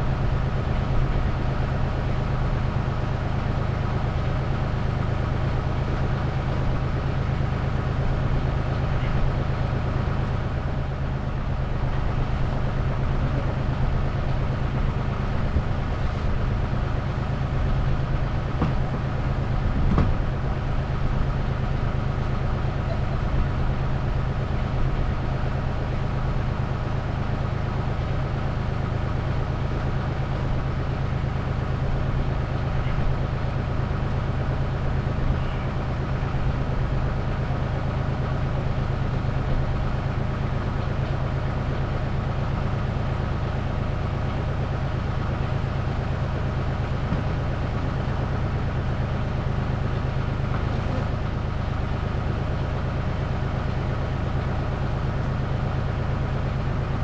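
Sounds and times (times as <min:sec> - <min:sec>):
low engine-like hum: 0:00.0 - 0:57.0.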